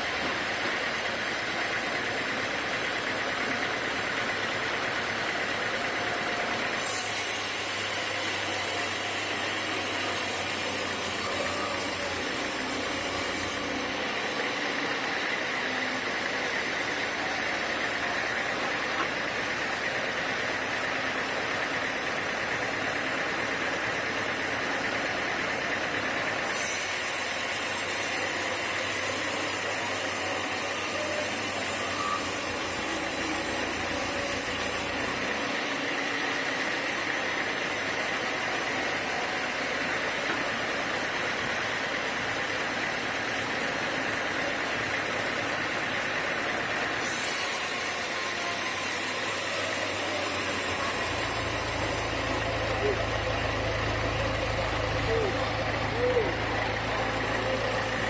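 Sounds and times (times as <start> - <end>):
sawmill machinery droning: 0.0 - 58.0.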